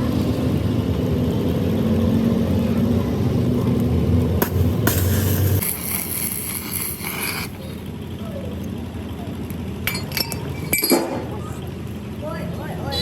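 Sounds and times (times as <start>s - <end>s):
high hiss: 4.4s - 7.8s.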